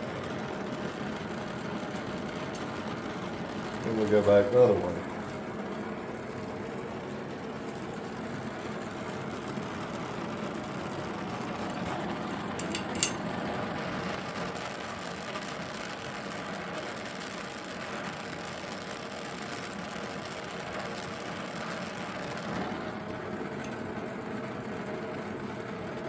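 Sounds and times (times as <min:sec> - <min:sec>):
gas torch flame rushing: 0:00.0 - 0:26.0
sharp metallic tink: 0:12.6 - 0:13.2.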